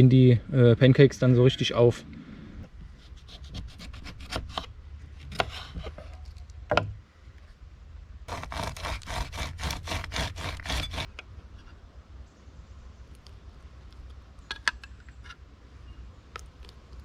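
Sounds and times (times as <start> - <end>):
scraping rubbing strokes: 8.3 - 11.1.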